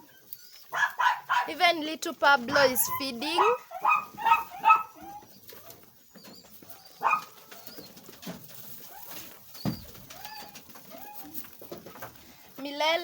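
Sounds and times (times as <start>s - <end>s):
birds chirping: 2.4s - 11.4s
birds cooing: 2.6s - 11.5s.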